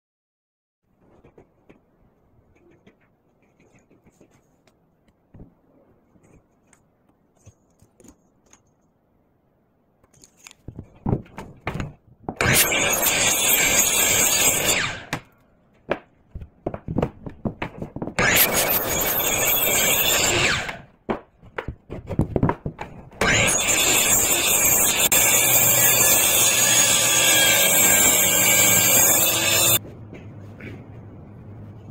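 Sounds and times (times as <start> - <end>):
woodworking tool cutting: 12.4 - 15.2, 18.2 - 20.9, 23.2 - 29.8.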